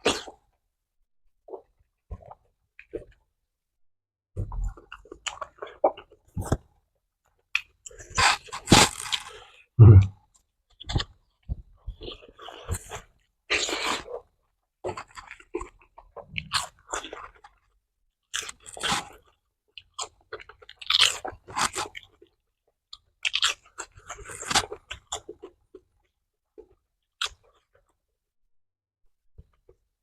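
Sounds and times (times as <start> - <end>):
person chewing crunchy food: 4.6 - 6.7, 7.5 - 10.1, 11.9 - 14.3, 14.9 - 17.6, 18.3 - 27.9.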